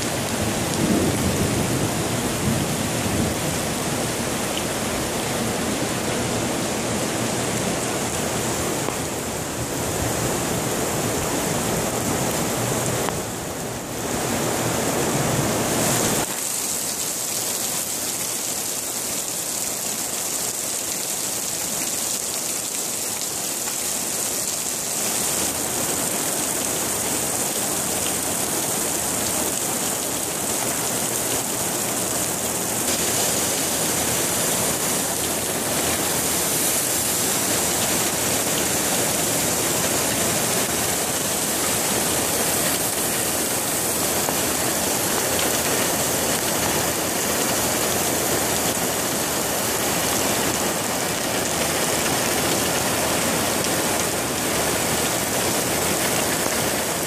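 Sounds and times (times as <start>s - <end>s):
heavy rain pouring onto steel: 0.0s - 57.0s
water splashing on flooded floor: 15.6s - 57.0s.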